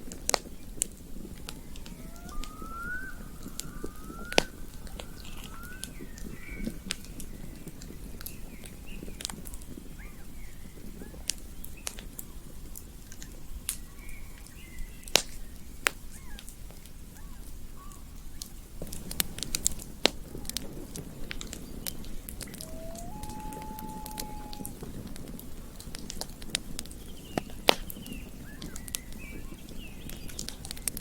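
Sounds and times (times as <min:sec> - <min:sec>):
short rising calls: 0:01.9 - 0:05.9, 0:22.4 - 0:24.8
wavering chirps: 0:01.9 - 0:06.0, 0:22.5 - 0:24.7
campfire crackling: 0:18.4 - 0:31.0.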